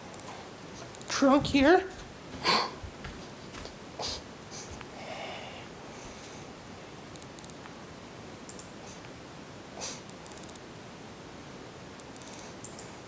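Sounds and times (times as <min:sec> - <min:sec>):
small clicks: 0:07.1 - 0:07.7, 0:08.5 - 0:08.8, 0:10.0 - 0:10.7, 0:12.0 - 0:13.0.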